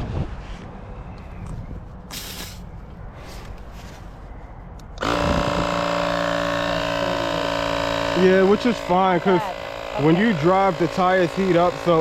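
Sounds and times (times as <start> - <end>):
short hiss of air: 2.1 - 3.4
tire inflator motor whine: 5.0 - 12.0.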